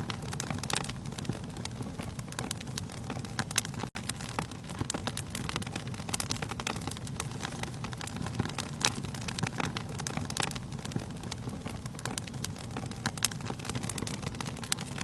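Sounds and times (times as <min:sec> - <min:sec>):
fire rumbling: 0:00.0 - 0:15.0
logs crackling and popping: 0:00.0 - 0:15.0.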